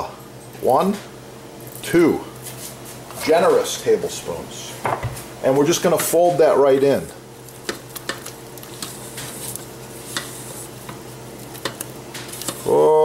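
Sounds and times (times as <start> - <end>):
spatula stirring thick batter: 5.8 - 12.7.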